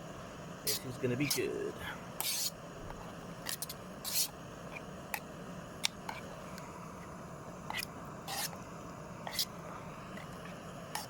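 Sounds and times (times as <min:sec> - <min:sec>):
gas burner hissing: 0:00.0 - 0:11.0
metal scraping on pot: 0:02.2 - 0:02.6, 0:07.6 - 0:08.6, 0:09.2 - 0:11.0.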